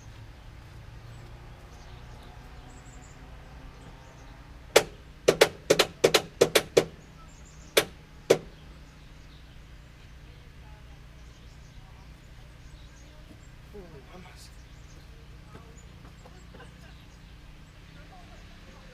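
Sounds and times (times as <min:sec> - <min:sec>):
sharp knocks on oil filter: 0:04.7 - 0:07.0, 0:07.7 - 0:08.6.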